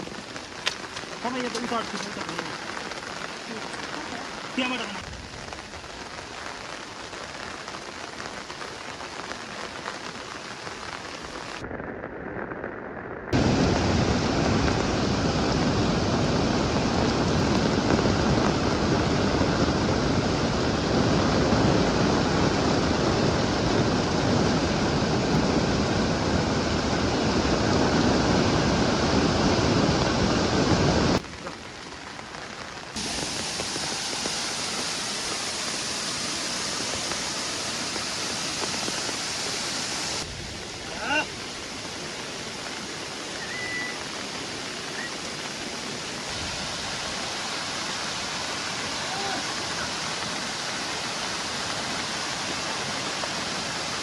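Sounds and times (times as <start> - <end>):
rain hissing: 0.0 - 54.0
rush of heavy rain or torrent: 0.0 - 54.0.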